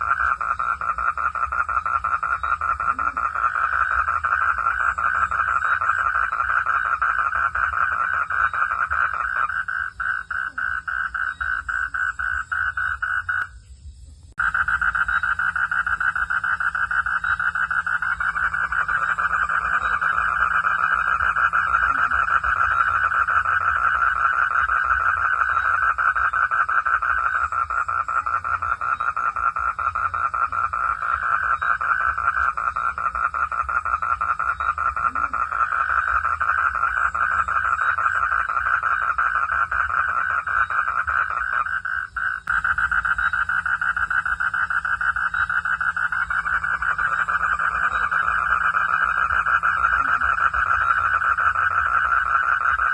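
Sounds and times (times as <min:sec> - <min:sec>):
frogs trilling: 0:00.0 - 0:52.9.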